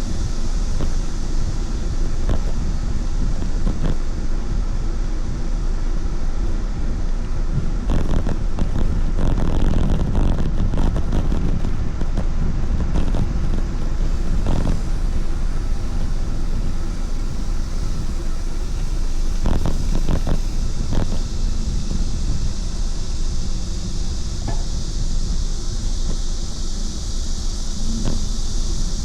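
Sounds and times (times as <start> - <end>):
wind buffeting microphone: 0.0 - 29.0
crackles: 14.1 - 21.6.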